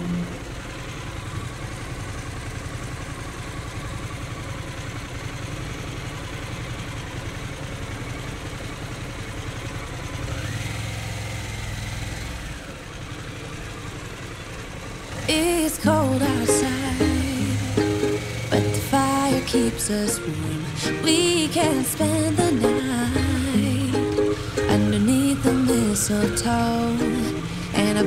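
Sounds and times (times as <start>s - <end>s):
motorcycle engine running: 0.0s - 28.0s
street ambience: 0.0s - 28.0s
faint whine: 15.3s - 28.0s.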